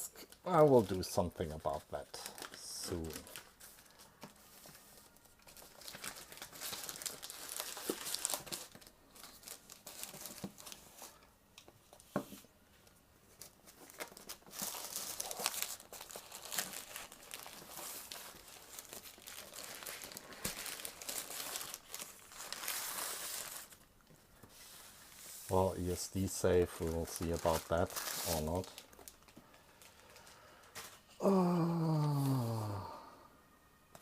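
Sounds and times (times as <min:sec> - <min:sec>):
plastic and paper crinkling: 0:00.2 - 0:12.2, 0:13.3 - 0:31.1
packaging tearing: 0:02.2 - 0:04.0, 0:05.4 - 0:10.8, 0:13.8 - 0:23.8, 0:26.5 - 0:30.2.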